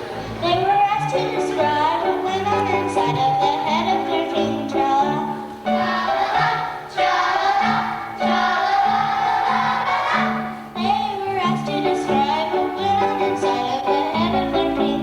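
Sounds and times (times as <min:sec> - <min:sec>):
group of voices singing: 0:02.1 - 0:15.0.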